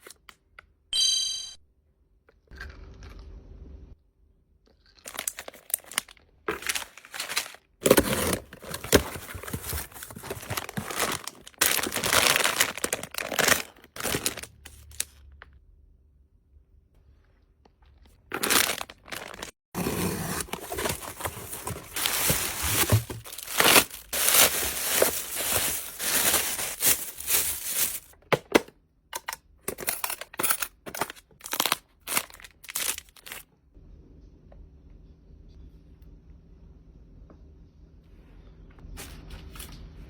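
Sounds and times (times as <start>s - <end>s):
packaging crinkling and tearing: 4.9s - 15.2s, 18.0s - 28.2s, 29.7s - 33.4s.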